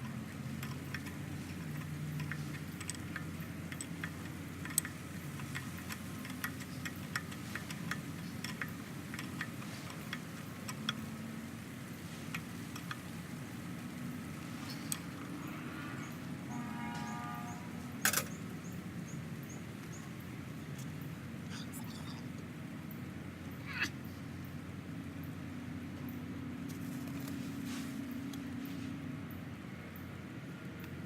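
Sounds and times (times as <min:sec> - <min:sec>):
light clicks and ticks: 0:00.0 - 0:15.3
low steady hum: 0:00.0 - 0:31.0.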